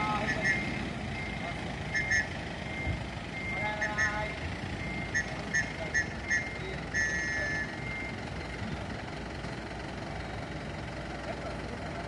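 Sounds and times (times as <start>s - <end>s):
truck engine rumble: 0.0s - 12.0s
electronic warning beeps: 0.2s - 8.7s.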